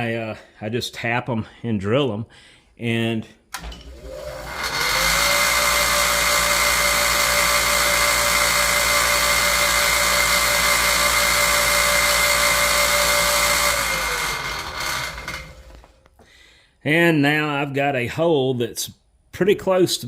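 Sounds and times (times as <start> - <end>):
electric drill drilling into metal: 3.6 - 16.0.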